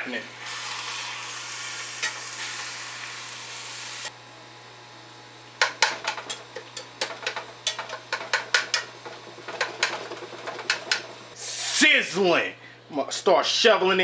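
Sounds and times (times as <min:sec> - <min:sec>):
meat sizzling in a frying pan: 0:00.4 - 0:04.1.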